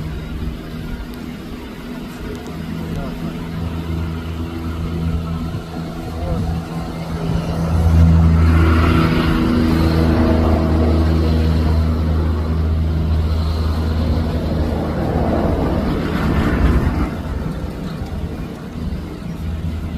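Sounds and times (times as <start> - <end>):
vehicle engine running: 0.0 - 19.9.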